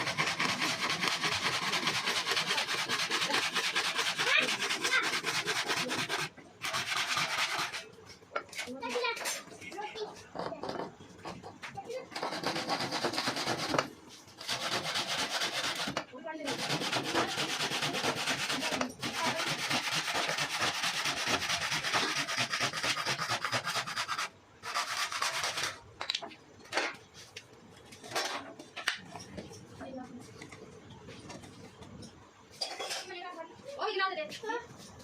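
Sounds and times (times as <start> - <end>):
sanding a surface: 0.0 - 8.0, 12.1 - 25.8.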